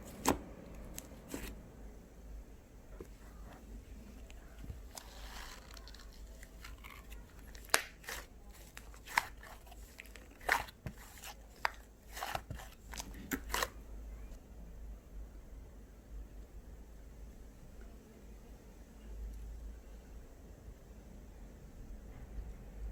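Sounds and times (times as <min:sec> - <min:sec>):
slime squished by hand: 0:04.3 - 0:13.8.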